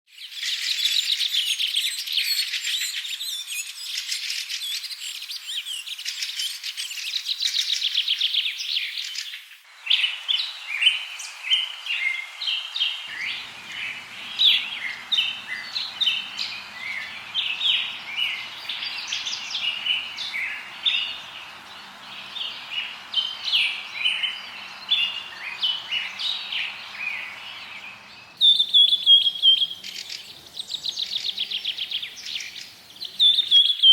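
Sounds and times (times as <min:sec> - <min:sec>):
songbirds chirping: 0:00.1 - 0:33.9
soft hiss: 0:08.7 - 0:33.4.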